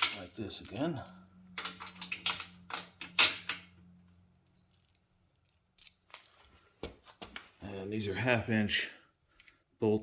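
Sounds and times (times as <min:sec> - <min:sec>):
metal bolts and nuts clinking: 0:00.0 - 0:03.8.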